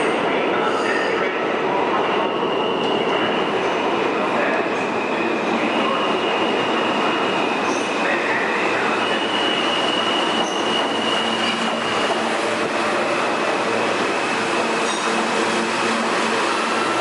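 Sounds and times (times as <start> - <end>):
train wheels rumbling on rail: 0.0 - 17.0
high wheel squeal: 4.7 - 17.0.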